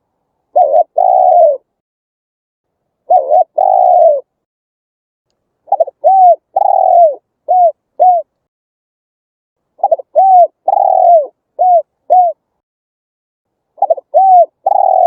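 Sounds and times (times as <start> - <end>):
dove cooing: 0.5 - 1.7, 3.0 - 4.3, 5.7 - 8.3, 9.8 - 12.4, 13.8 - 15.0.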